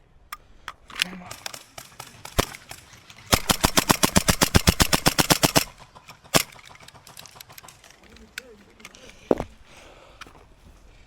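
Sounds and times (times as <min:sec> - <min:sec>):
airsoft rifle firing: 0:01.1 - 0:07.9.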